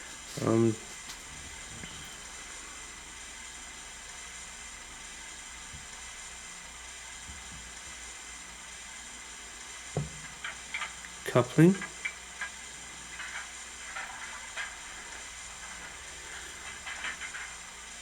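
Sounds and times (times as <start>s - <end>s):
faint steady hiss: 0.0s - 18.0s
low thump: 10.0s - 10.4s.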